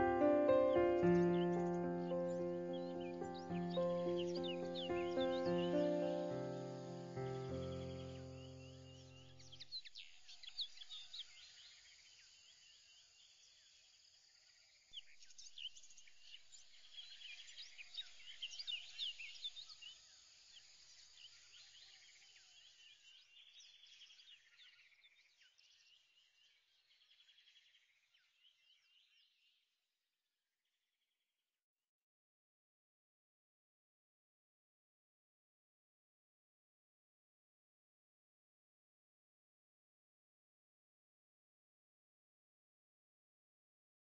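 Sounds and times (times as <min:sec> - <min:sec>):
small birds chirping: 0:00.0 - 0:13.8, 0:15.0 - 0:29.6.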